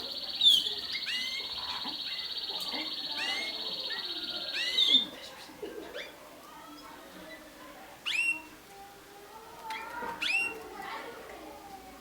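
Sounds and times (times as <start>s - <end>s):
canary trilling: 0.0s - 5.1s.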